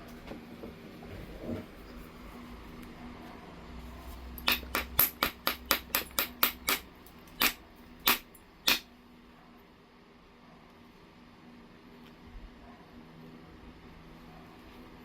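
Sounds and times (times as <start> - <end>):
knapping tool tapping stone: 4.4 - 8.9.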